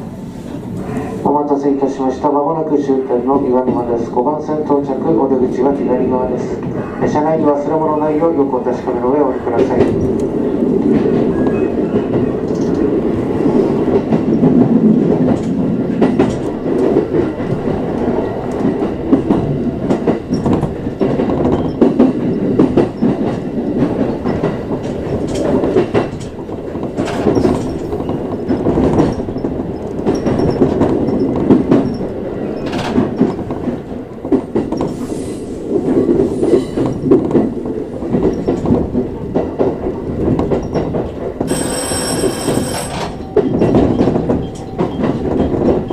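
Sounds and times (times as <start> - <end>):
train rumble: 0.0 - 45.9
wheels clattering over rail joints: 9.6 - 35.0, 35.7 - 45.9
wheels squealing: 41.5 - 45.9.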